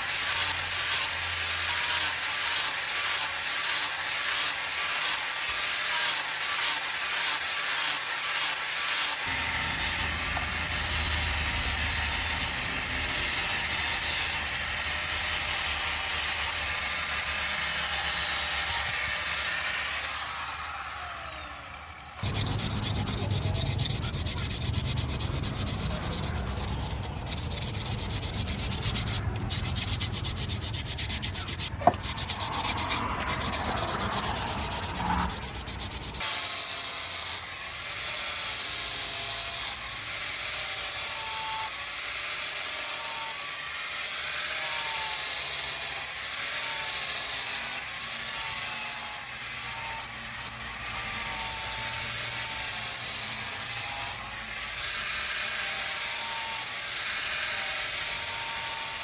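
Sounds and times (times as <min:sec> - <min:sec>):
sword blade being ground: 0:05.9 - 0:20.2, 0:22.2 - 0:37.4.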